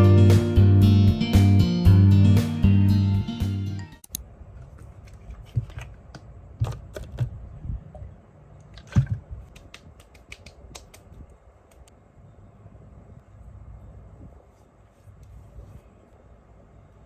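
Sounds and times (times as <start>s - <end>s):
background music: 0.0s - 4.0s
faint low background noise: 4.0s - 17.0s.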